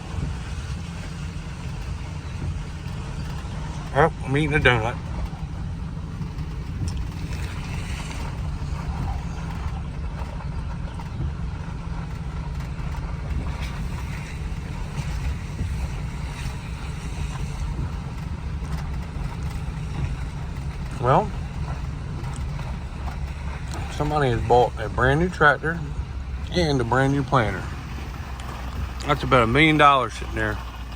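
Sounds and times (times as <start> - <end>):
vehicle rumbling: 0.0 - 30.9.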